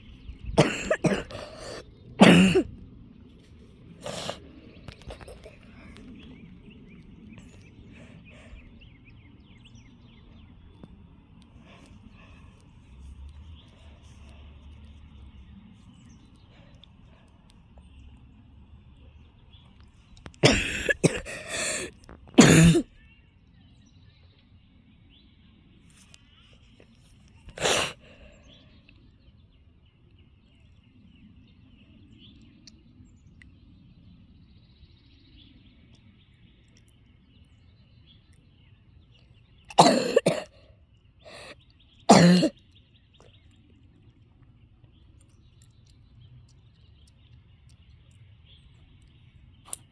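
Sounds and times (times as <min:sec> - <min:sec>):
person coughing: 0:00.6 - 0:02.7, 0:20.4 - 0:22.9, 0:27.6 - 0:28.0, 0:39.7 - 0:40.6, 0:41.3 - 0:41.5, 0:42.1 - 0:42.5.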